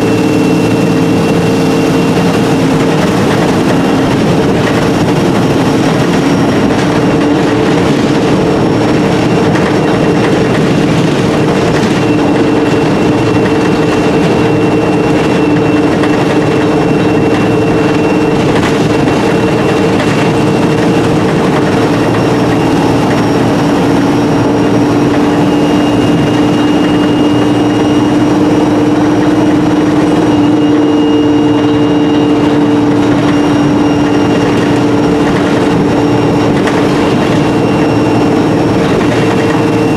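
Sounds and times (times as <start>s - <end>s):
bus engine drone: 0.0s - 39.9s
high whines: 0.0s - 39.9s.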